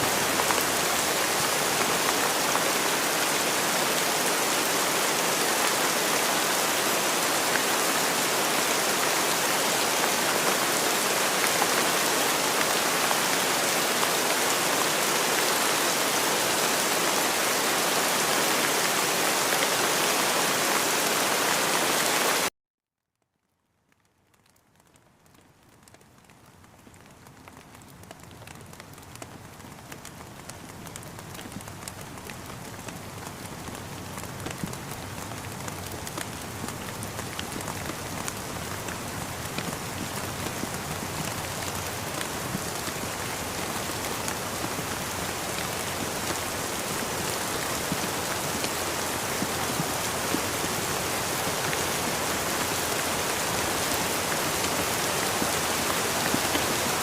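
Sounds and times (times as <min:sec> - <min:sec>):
rain drops tapping: 0:23.8 - 0:57.0.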